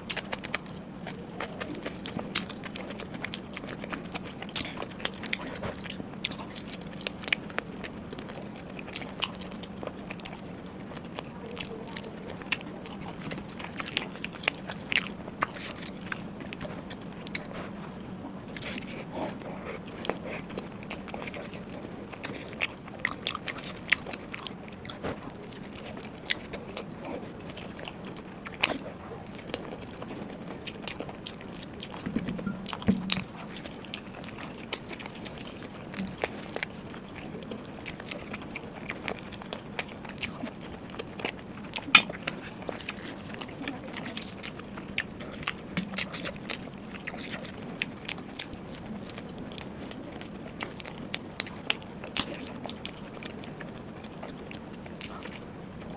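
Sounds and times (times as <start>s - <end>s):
person chewing food: 0.0s - 55.9s
mouth clicks and smacks: 41.2s - 47.6s.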